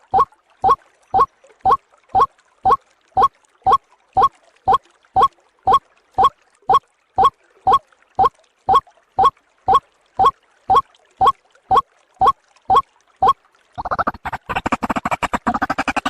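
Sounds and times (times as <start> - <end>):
waterhen calling: 9.2 - 10.8, 12.7 - 16.0.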